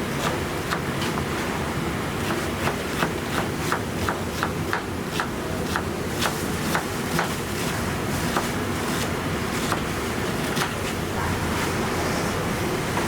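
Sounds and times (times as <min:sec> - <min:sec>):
low kitchen hum: 0:00.0 - 0:13.0
knife chopping on cutting board: 0:02.2 - 0:07.4, 0:08.3 - 0:09.9.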